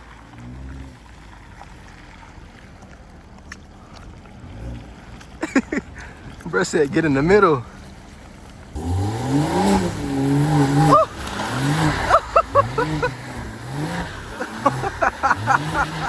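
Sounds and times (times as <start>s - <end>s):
car engine revving: 7.1s - 16.0s.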